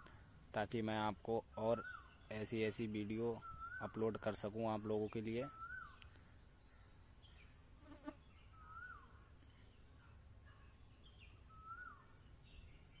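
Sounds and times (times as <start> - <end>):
high bird chirps: 1.5 - 7.4, 11.0 - 13.0
bird whistling: 3.4 - 4.2, 5.4 - 6.0, 11.5 - 12.1.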